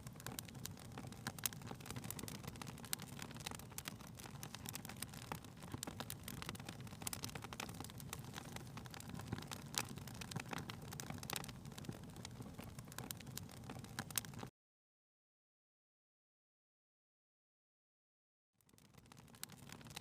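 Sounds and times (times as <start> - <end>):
wood fire crackling: 0.0 - 14.5, 18.6 - 20.0.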